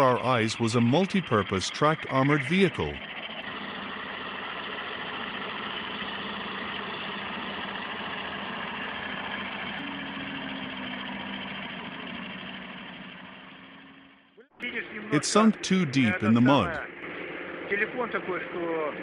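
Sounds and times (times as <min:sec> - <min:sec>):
diesel engine running: 0:00.0 - 0:14.4, 0:15.1 - 0:18.1.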